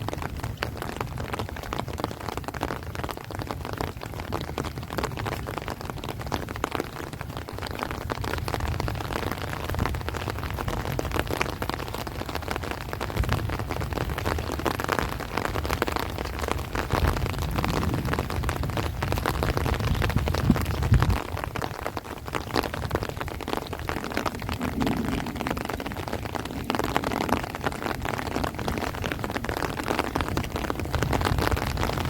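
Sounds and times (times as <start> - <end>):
heavy rain on plants and trees: 0.0 - 32.0
strong wind rumble: 0.0 - 32.0.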